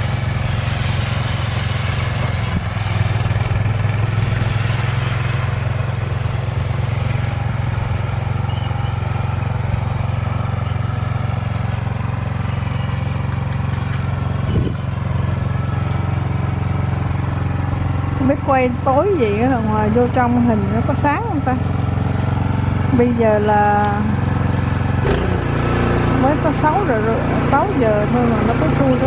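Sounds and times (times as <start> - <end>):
snowblower engine running: 0.0 - 29.0.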